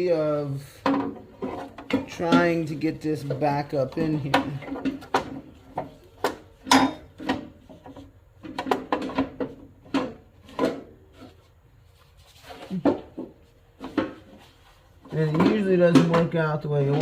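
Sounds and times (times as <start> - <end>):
hard parts knocking and clunking: 0.0 - 11.4, 15.0 - 17.0.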